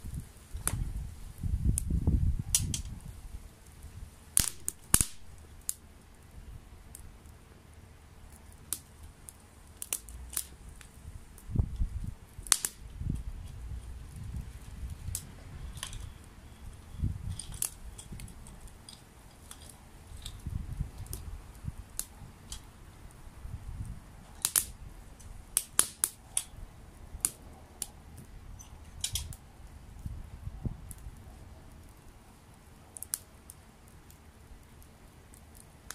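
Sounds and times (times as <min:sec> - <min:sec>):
campfire crackling and popping: 0:00.0 - 0:35.9
low uneven rumble: 0:05.1 - 0:25.6.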